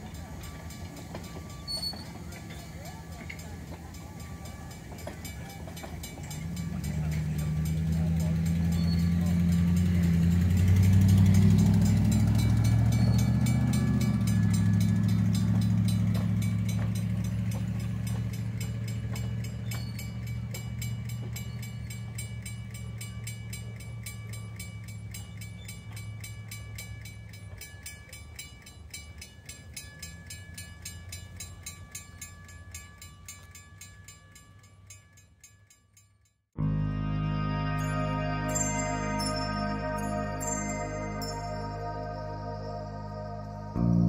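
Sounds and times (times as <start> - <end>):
train rumbling: 0.0 - 27.7
crossing signal bell ringing: 0.0 - 35.4, 36.6 - 44.0.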